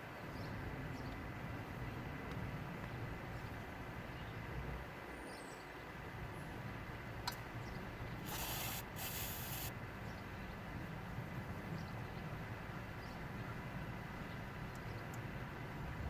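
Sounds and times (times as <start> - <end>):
aerosol can spraying: 8.2 - 9.7.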